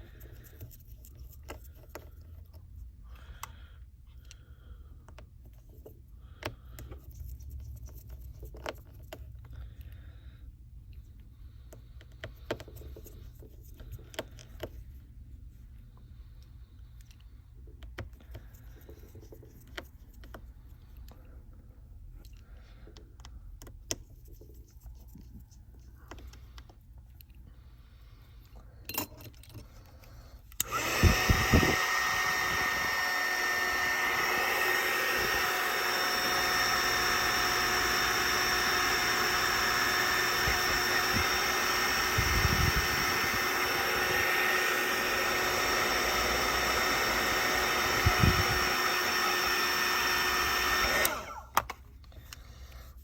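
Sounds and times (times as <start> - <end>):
hot-air blower whooshing: 30.3 - 53.0.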